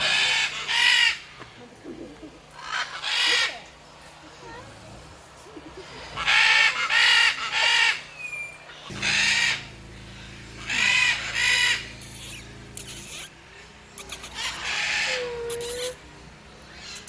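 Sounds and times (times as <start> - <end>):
parrots squawking: 0.0 - 1.3, 2.6 - 3.7, 5.8 - 16.0
steady low hum: 3.6 - 17.0.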